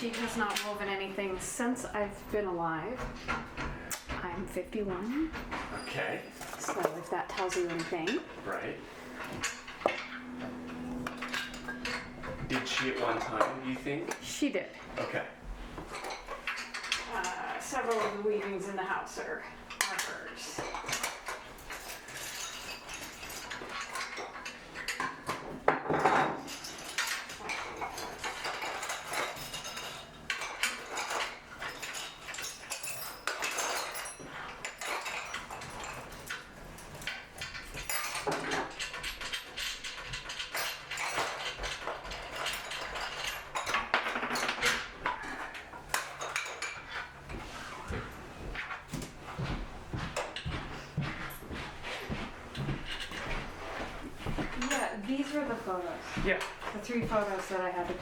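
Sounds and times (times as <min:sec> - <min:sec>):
loom parts clinking and rattling: 0:00.0 - 0:58.0
scraping and rustling: 0:14.8 - 0:58.0.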